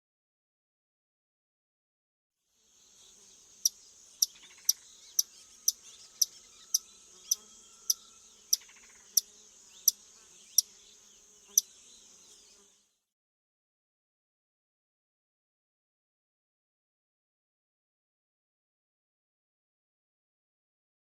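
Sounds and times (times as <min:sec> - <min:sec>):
high insect drone: 0:02.7 - 0:12.8.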